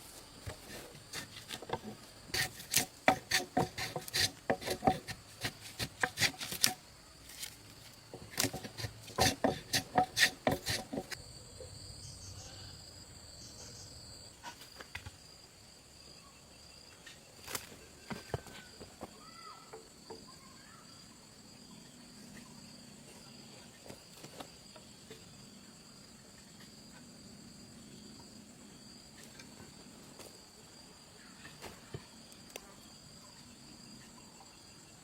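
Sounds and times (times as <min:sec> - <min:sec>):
hand tool rasping wood: 0:00.5 - 0:11.2.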